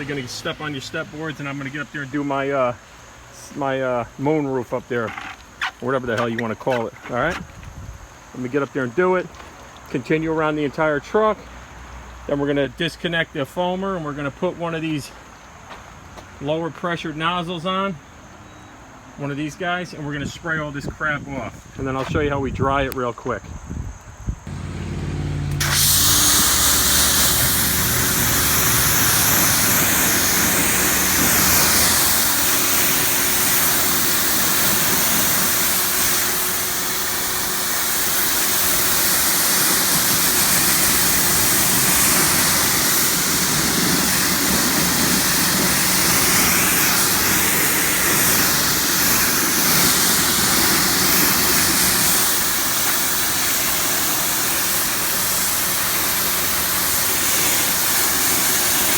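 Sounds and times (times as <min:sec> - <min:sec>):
pressure washer spray hissing: 0:00.0 - 0:03.8, 0:24.5 - 0:58.9
machine running hum: 0:24.5 - 0:52.7.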